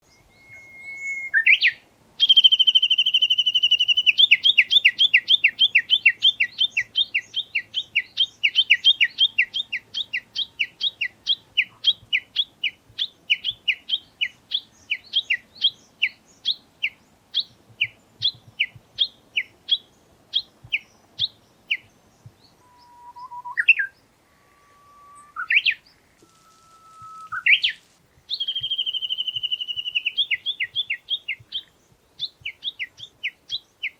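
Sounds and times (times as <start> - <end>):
low whistles with upward sweep: 22.6 - 27.9
bird calling with rapid notes: 22.6 - 33.1.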